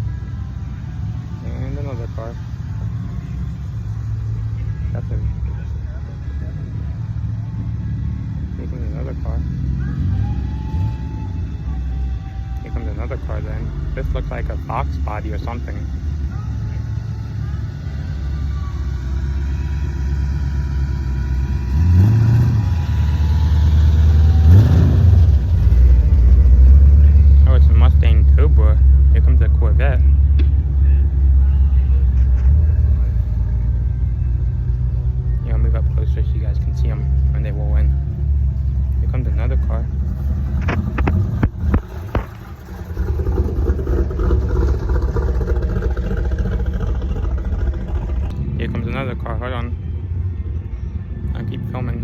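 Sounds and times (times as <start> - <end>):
car engine rumbling: 0.0 - 52.0
engine throttle blip: 39.6 - 48.4.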